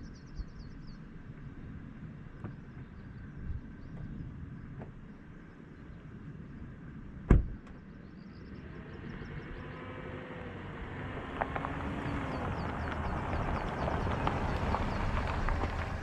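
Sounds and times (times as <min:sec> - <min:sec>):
car engine and tyre noise: 0:00.0 - 0:16.0
car door shutting: 0:07.3 - 0:07.8.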